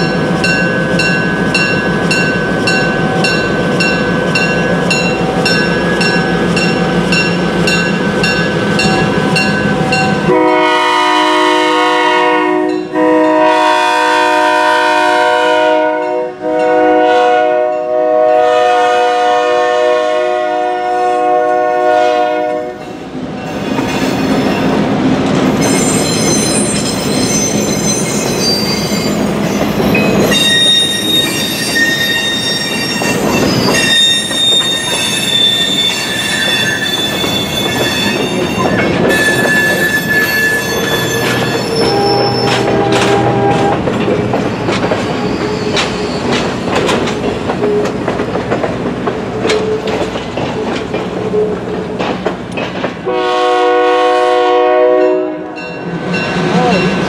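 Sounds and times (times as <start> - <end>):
railroad car wheels squealing: 0.0 - 10.6, 21.9 - 53.1
wheels clattering over rail joints: 32.9 - 53.1.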